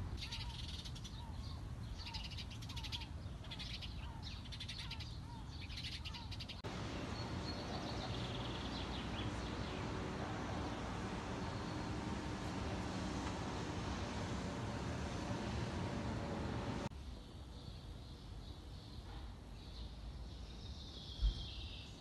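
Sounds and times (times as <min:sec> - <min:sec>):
birds chirping: 0:00.0 - 0:16.9
low background hum: 0:00.0 - 0:18.2
steady rushing noise: 0:06.6 - 0:16.9.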